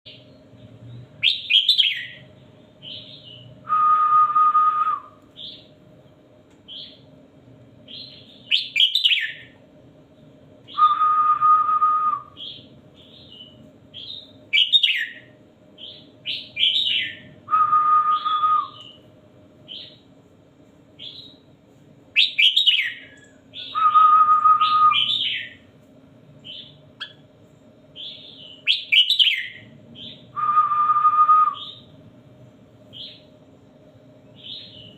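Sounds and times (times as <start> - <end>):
faint steady hum: 0.1 - 34.9
held whistle: 3.7 - 5.2, 10.7 - 12.4, 17.5 - 18.9, 23.6 - 25.1, 30.3 - 31.8.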